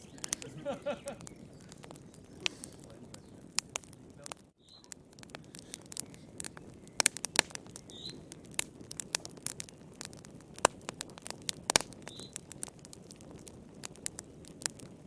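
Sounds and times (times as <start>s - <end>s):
campfire crackling and popping: 0.0s - 15.0s
soft hiss of burning: 0.0s - 15.0s.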